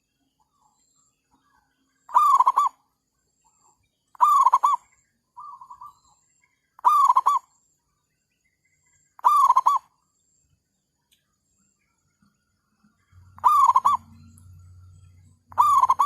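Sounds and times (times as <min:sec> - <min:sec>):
doves cooing: 0:02.1 - 0:02.8, 0:04.2 - 0:04.8, 0:06.8 - 0:07.5, 0:09.2 - 0:09.9, 0:13.2 - 0:14.6, 0:15.4 - 0:16.0.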